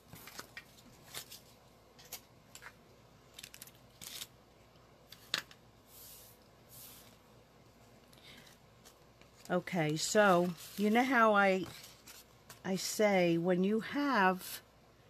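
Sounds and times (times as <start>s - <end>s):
paper rustling: 8.4s - 12.6s.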